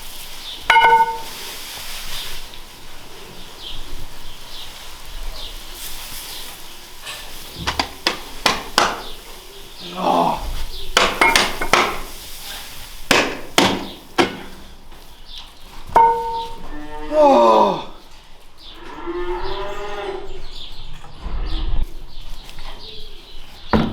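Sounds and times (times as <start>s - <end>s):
sharp knocks and clatters: 7.6s - 9.2s, 11.0s - 12.1s, 13.1s - 14.8s, 15.9s - 16.6s.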